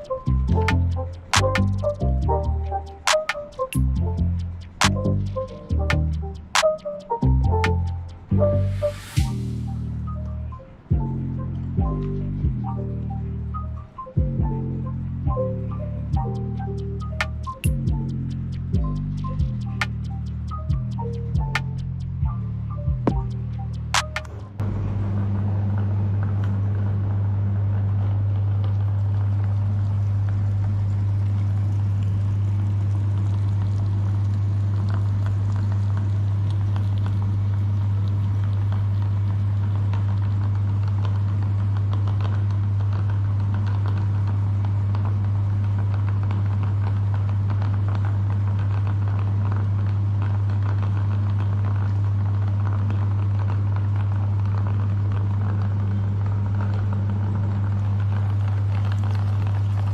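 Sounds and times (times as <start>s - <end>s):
meat grinder motor humming: 50.3s - 59.9s.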